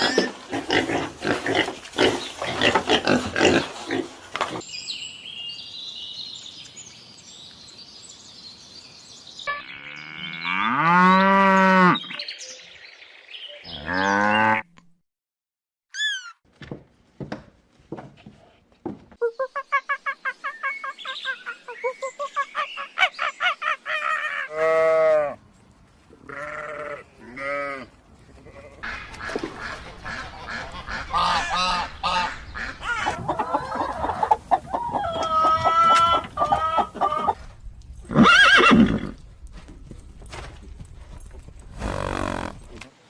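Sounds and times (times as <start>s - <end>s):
farm animals calling: 9.5s - 12.2s, 13.6s - 14.8s, 19.5s - 25.4s, 26.2s - 37.5s.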